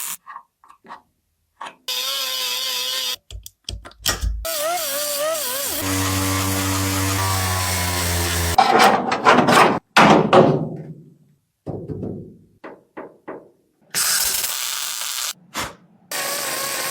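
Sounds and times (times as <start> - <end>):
power tool motor whine: 4.5 - 8.6
knocks: 11.6 - 13.6.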